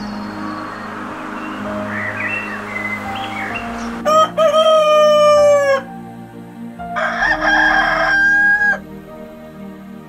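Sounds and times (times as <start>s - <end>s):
rooster crowing: 3.9s - 5.9s, 7.0s - 8.9s.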